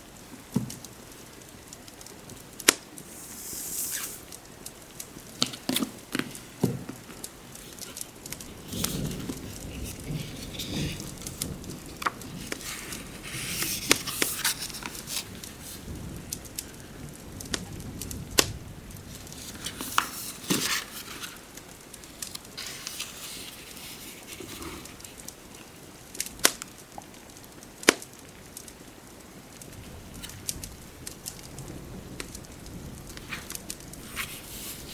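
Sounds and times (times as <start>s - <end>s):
fireplace crackling: 0.0s - 34.9s
low steady hiss: 0.0s - 34.9s
burning wood popping: 1.4s - 28.7s, 29.5s - 34.9s
soft rustles: 3.0s - 17.7s, 19.0s - 26.0s, 29.7s - 34.9s.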